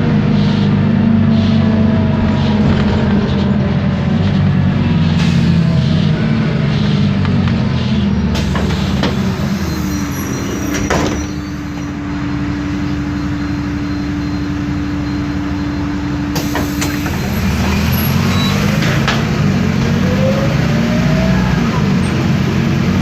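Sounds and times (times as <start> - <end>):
bus diesel engine: 0.0 - 23.0
gear whine: 8.2 - 23.0.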